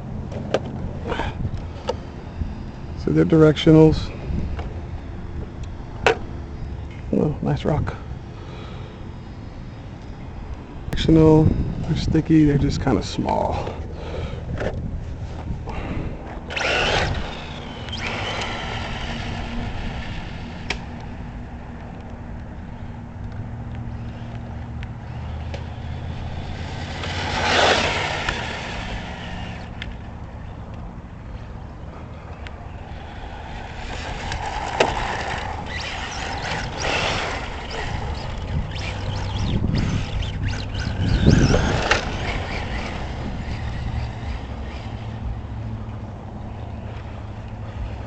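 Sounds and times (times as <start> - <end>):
toy truck electric motor whining: 1.1 - 7.0, 7.9 - 12.0, 16.3 - 21.3, 23.9 - 30.0, 32.8 - 45.5
tires crunching on dirt: 6.2 - 48.0.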